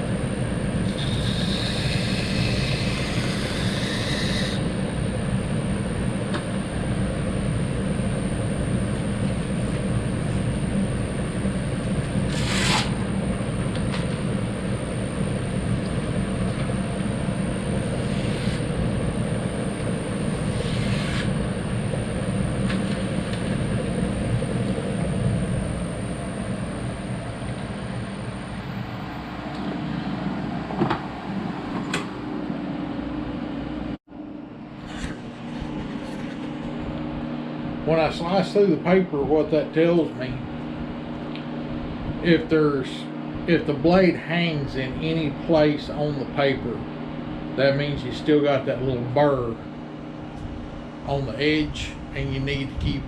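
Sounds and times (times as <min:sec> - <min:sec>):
belt grinder motor hum and whine: 0:00.0 - 0:33.9.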